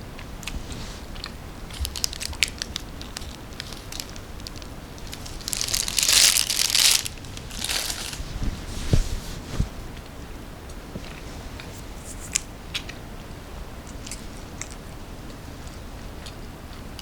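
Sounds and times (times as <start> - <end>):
snack packaging crinkling: 1.2 - 8.4
loud packaging rustle: 1.7 - 9.5.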